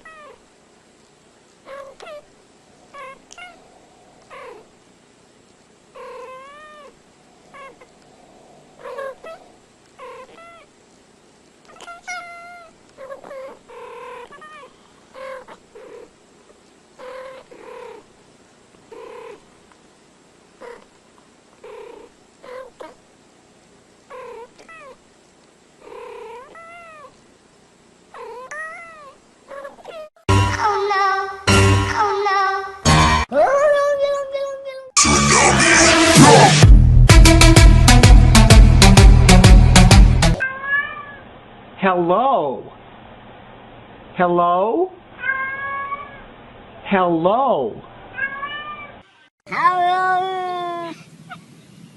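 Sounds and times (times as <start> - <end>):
cat meowing: 0.0 - 0.4, 1.7 - 2.3, 2.9 - 3.6, 6.0 - 7.9, 8.8 - 9.4, 11.7 - 16.0, 25.9 - 27.2, 28.2 - 30.2, 40.4 - 41.2, 45.2 - 46.2, 48.2 - 51.0.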